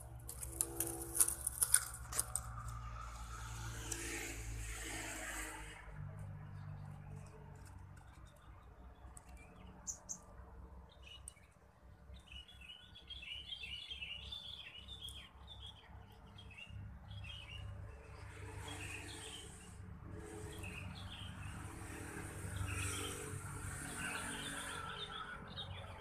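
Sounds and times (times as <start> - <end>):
small birds twittering: 8.0 - 17.7.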